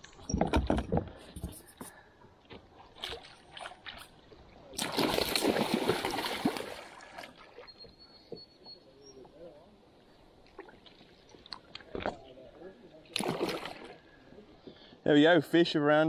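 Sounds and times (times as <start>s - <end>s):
water splashing: 2.7s - 7.7s, 13.1s - 14.1s.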